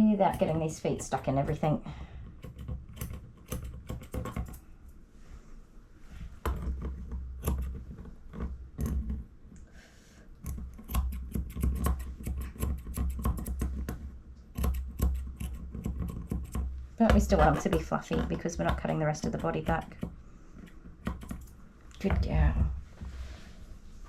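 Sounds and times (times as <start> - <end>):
scissors snipping fur: 0.0 - 1.6, 10.4 - 13.7, 14.5 - 21.5.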